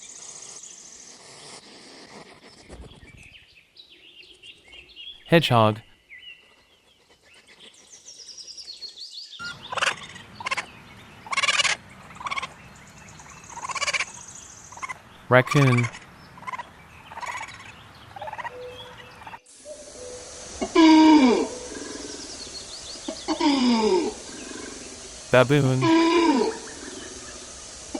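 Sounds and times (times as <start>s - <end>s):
hedgehog calls: 25.4s - 26.1s.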